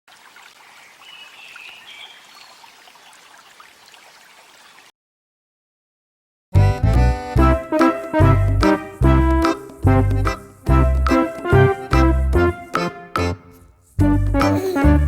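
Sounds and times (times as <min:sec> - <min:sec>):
outdoor ambience hiss: 0:00.1 - 0:04.8.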